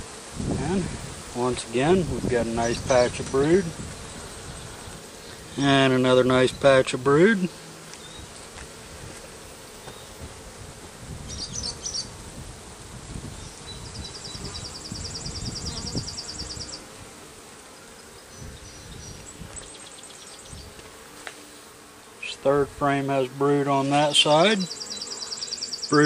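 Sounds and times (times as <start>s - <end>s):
honeybees humming: 0.0s - 26.0s
light knocks of hive frames: 7.8s - 11.0s, 19.2s - 21.6s.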